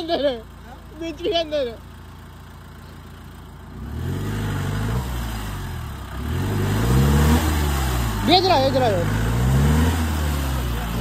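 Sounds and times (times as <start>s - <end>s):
suv engine revving: 0.0s - 11.0s.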